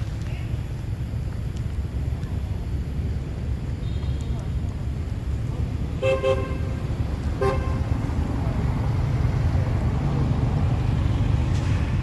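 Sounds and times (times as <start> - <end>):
traffic rumble: 0.0 - 12.0
vehicle horn toots: 6.0 - 6.7, 7.4 - 7.8.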